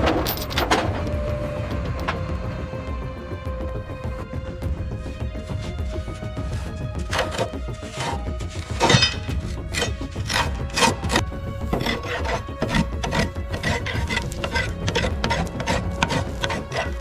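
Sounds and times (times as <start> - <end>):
background music with sustained tones: 0.0 - 17.0
rough scraping strokes: 5.0 - 17.0.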